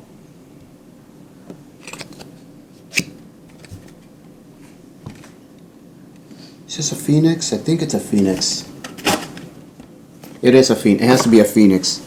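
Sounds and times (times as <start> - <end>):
packaging clicks and rustles: 1.8 - 2.3, 2.9 - 4.1
packaging sharp snap: 1.8 - 2.3, 2.9 - 4.1.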